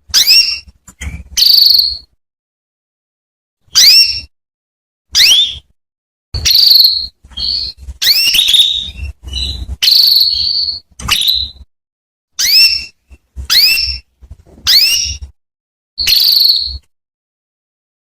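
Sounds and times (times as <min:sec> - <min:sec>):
canary whistled call notes: 0:00.1 - 0:02.1, 0:03.7 - 0:04.3, 0:05.1 - 0:05.7, 0:06.4 - 0:11.7, 0:12.4 - 0:14.1, 0:14.7 - 0:15.3, 0:16.0 - 0:16.9
canary steady whistle: 0:05.1 - 0:05.7, 0:06.4 - 0:11.6, 0:16.0 - 0:16.9.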